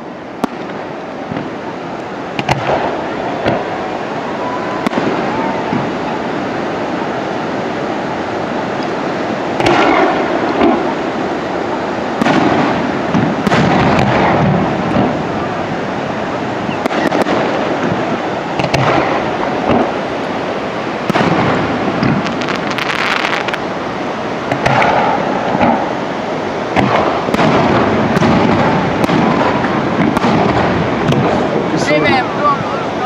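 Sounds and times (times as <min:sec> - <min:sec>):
fireworks booming: 0:00.0 - 0:33.0
sharp crackles: 0:16.7 - 0:20.0, 0:21.1 - 0:23.6, 0:24.5 - 0:25.9.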